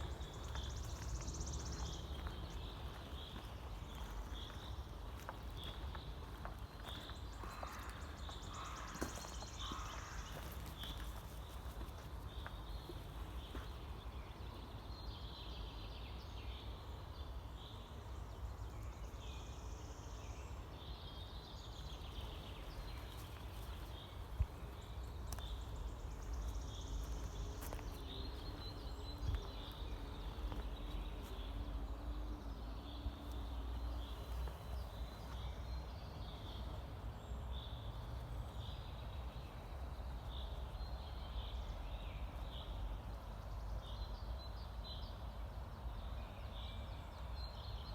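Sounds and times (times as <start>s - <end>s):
steady low rumble: 0.0s - 6.5s
small birds chirping: 0.0s - 47.9s.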